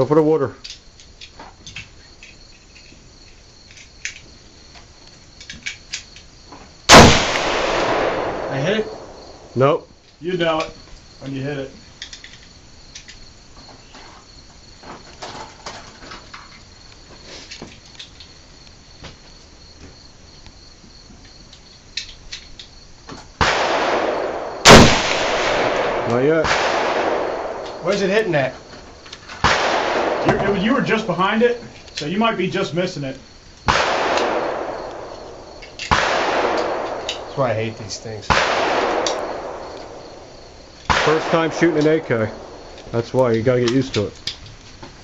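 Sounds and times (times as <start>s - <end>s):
crickets chirping: 0.0s - 45.0s
loud rifle shot with echo: 6.9s - 9.6s, 23.4s - 28.5s, 29.4s - 30.9s, 33.7s - 37.3s, 38.3s - 42.7s.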